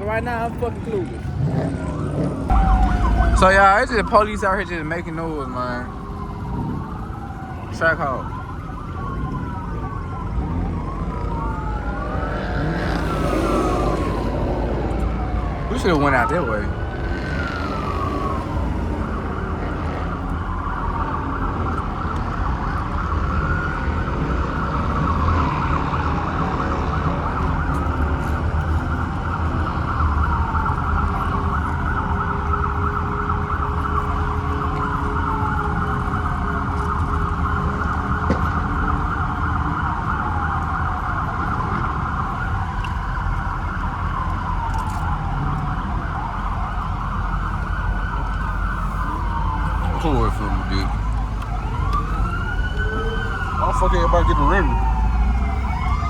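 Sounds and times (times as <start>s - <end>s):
police sirens: 0.0s - 56.0s
low rumble: 2.4s - 5.1s.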